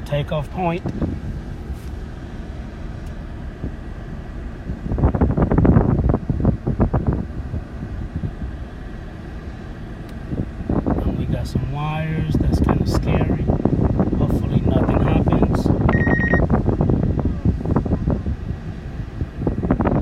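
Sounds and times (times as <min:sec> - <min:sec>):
truck engine and road rumble: 0:00.0 - 0:20.0.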